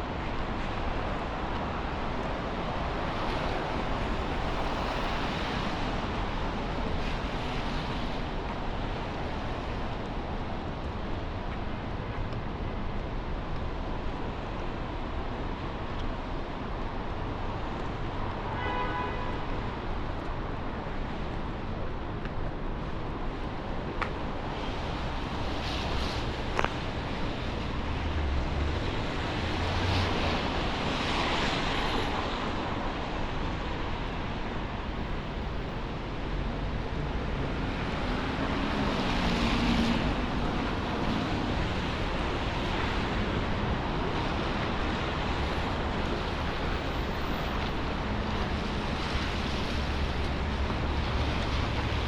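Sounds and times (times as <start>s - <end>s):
wet traffic passing: 37.2s - 52.0s.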